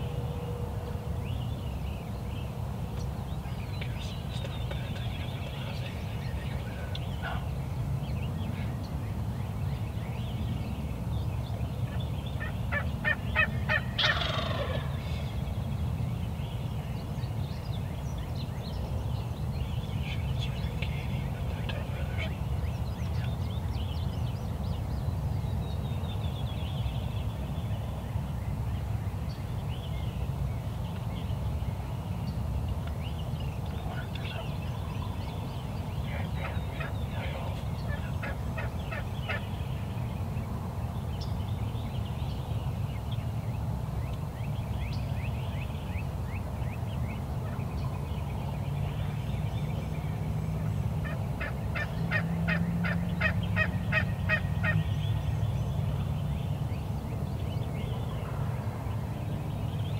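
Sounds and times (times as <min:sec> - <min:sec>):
turkey gobbling: 0:12.4 - 0:14.9, 0:36.2 - 0:39.4, 0:51.0 - 0:54.8.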